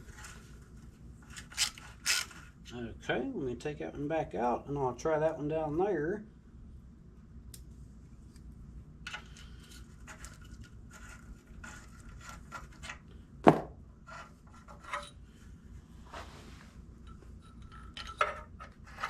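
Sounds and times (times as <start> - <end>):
light metal clicks and scrapes: 14.1 - 15.3.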